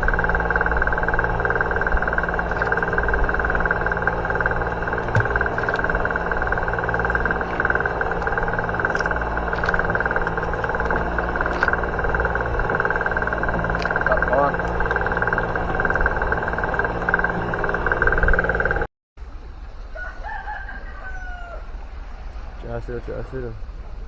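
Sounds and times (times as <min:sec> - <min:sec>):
boat engine running: 0:00.0 - 0:18.9
faint clicks: 0:00.0 - 0:18.9.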